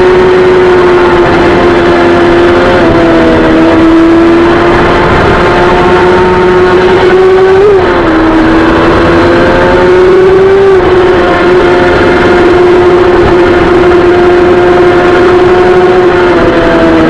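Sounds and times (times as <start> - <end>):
motorcycle engine at high revs: 0.0 - 17.0
steady rushing noise: 0.0 - 17.0.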